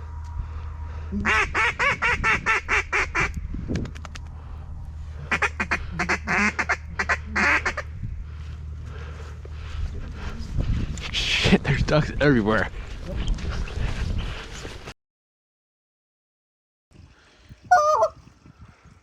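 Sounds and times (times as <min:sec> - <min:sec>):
duck call quacks: 0:01.2 - 0:03.3, 0:05.3 - 0:07.9, 0:17.7 - 0:18.2.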